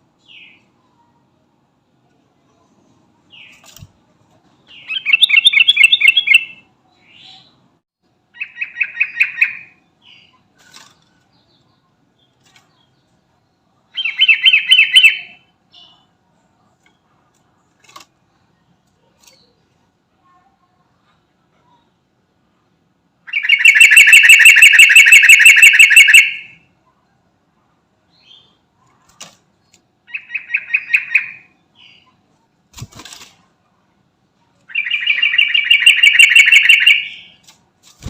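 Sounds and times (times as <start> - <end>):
bulbul chattering song: 4.7 - 7.6, 13.9 - 16.1, 23.3 - 26.7, 30.0 - 32.2, 34.6 - 37.4.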